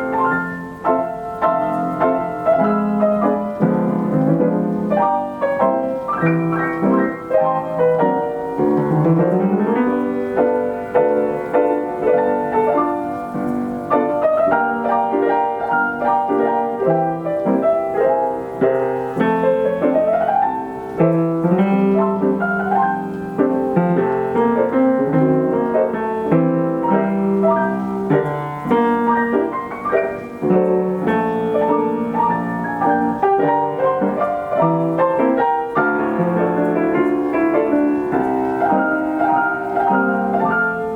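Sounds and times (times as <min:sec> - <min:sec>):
player piano playing chords and runs: 0:00.0 - 0:40.9.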